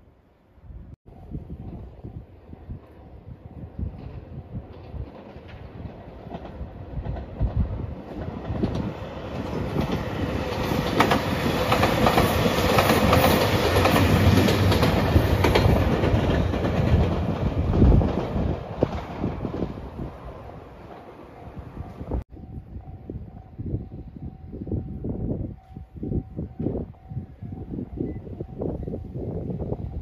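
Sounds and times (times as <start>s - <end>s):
diesel train passing: 1.1s - 30.0s
wheels clacking over rail joints: 3.9s - 22.2s.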